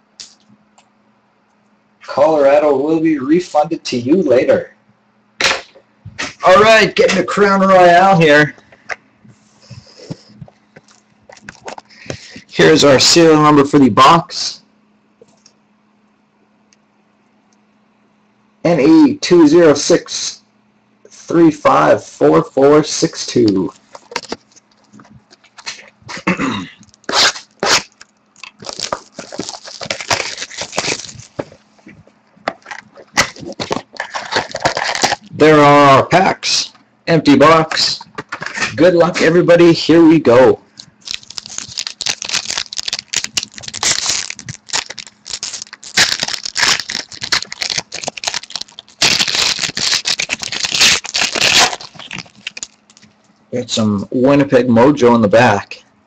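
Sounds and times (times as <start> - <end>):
packaging rustling: 10.2 - 12.4, 23.6 - 26.0, 26.8 - 35.4, 40.7 - 53.2
wrapping and cardboard tearing: 26.8 - 31.6, 32.6 - 35.3, 40.8 - 53.1.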